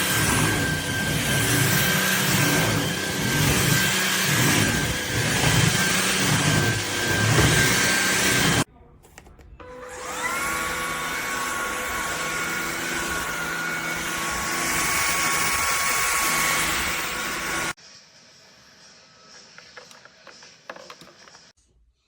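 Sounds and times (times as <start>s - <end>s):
stick vacuum motor whining: 0.0s - 8.7s, 9.6s - 17.8s.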